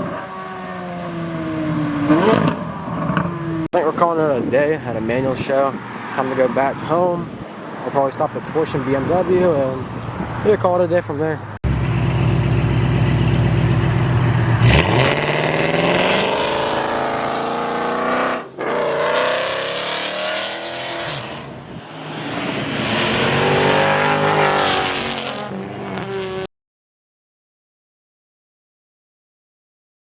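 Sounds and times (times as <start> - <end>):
car engine accelerating through gears: 1.0 - 3.7, 11.7 - 26.5.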